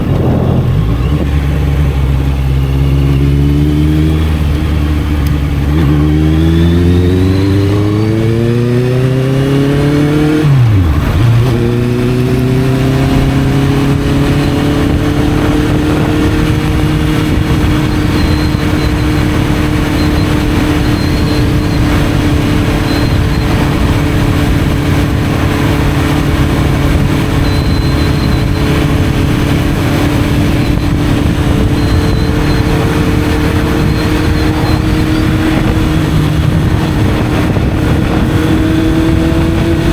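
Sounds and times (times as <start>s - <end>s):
motorcycle engine accelerating: 0.0s - 39.9s
steady rushing noise: 10.4s - 39.9s.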